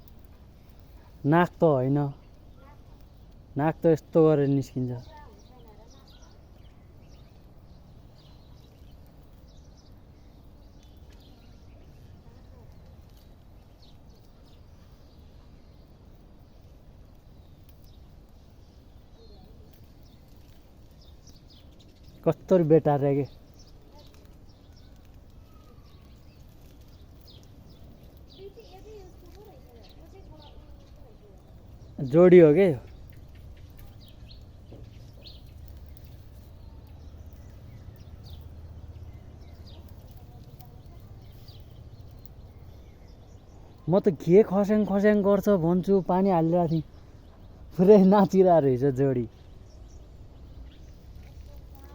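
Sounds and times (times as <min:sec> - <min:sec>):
bird chirping: 0:00.0 - 0:51.9
low outdoor rumble: 0:00.0 - 0:51.9
faint ticks and clicks: 0:08.2 - 0:14.6, 0:16.6 - 0:22.5, 0:23.3 - 0:32.0, 0:32.8 - 0:42.9, 0:50.6 - 0:51.9.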